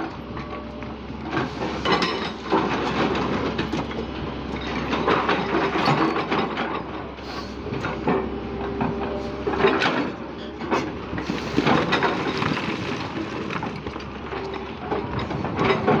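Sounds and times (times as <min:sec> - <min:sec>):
bucket scraping soil and stones: 0:11.1 - 0:14.7.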